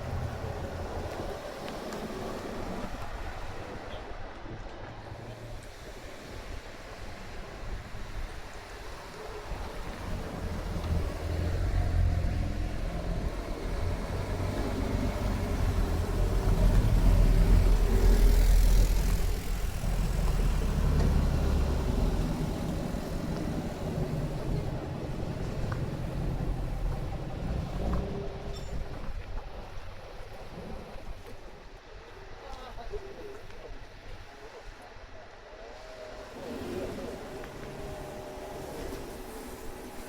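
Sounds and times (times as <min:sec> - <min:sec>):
car driving past: 0:09.9 - 0:28.6.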